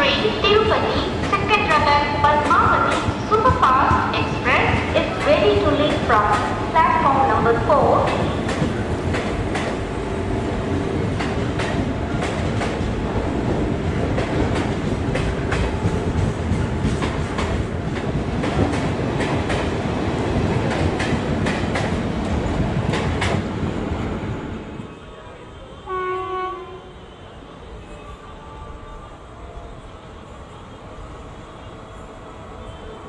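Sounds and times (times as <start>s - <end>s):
train coaches rumbling past: 0.0s - 33.0s
train horn blast: 25.8s - 27.3s.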